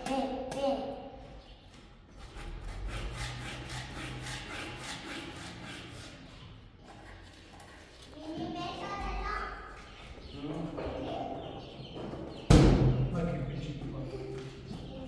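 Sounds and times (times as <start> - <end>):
rhythmic rubbing strokes: 2.2 - 8.1.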